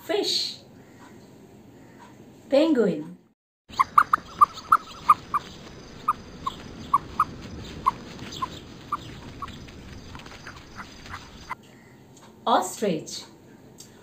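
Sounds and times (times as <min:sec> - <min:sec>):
penguins peeping: 0:03.7 - 0:11.6.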